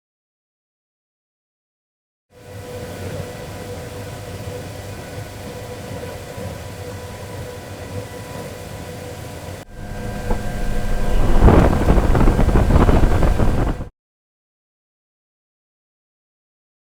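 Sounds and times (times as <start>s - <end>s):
mechanical hum with held tones: 2.4s - 13.9s
wind buffeting microphone: 9.7s - 13.9s.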